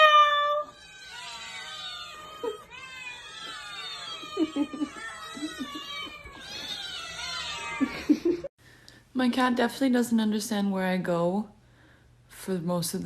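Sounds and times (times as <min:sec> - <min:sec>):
cats meowing: 0:00.0 - 0:08.4.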